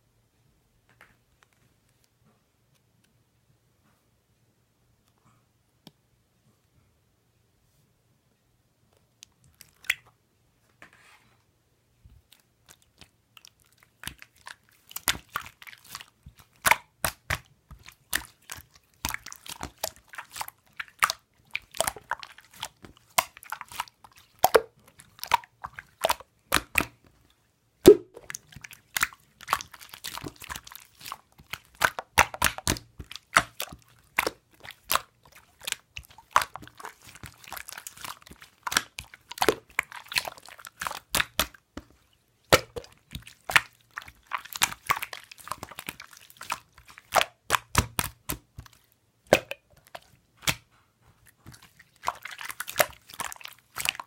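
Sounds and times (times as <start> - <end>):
slime crackling and popping: 12.7 - 27.0, 27.8 - 41.9, 42.5 - 50.6, 51.4 - 54.0.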